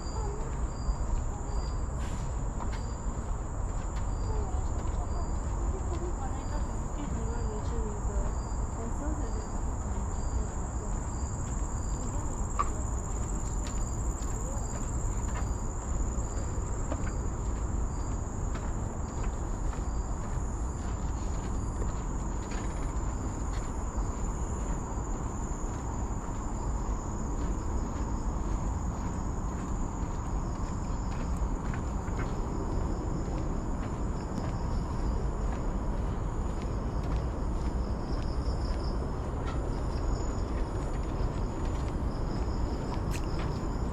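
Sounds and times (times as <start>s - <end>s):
insect chirping: 0.0s - 43.9s
insect high-pitched trill: 42.0s - 43.9s.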